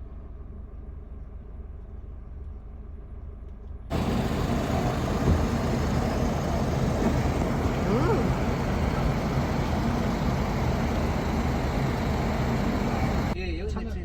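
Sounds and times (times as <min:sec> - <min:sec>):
vehicle and road noise: 0:03.9 - 0:13.4
vehicle engine rumble: 0:03.9 - 0:13.4.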